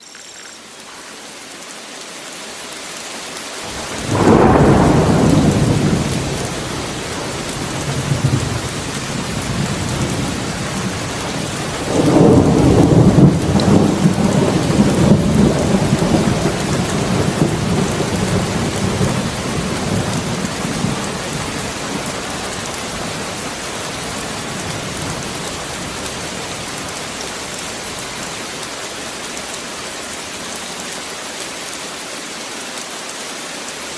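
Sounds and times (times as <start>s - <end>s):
steady rain: 0.0s - 33.9s
thunder rumble: 3.7s - 28.2s.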